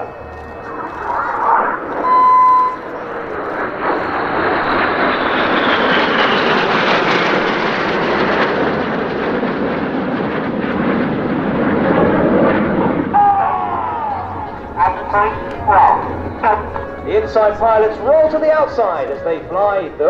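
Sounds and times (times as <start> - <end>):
jet engines whining past: 0.0 - 20.0
short steady beep: 2.0 - 2.9.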